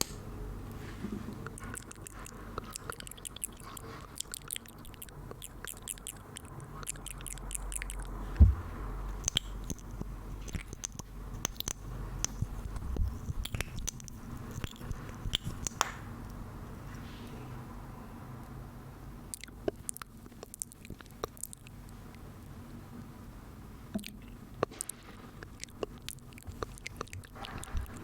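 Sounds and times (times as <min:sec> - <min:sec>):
wet mouth clicks and smacks: 0:01.5 - 0:16.0, 0:19.3 - 0:21.7, 0:24.0 - 0:28.0
heavy low thump: 0:08.4 - 0:09.1.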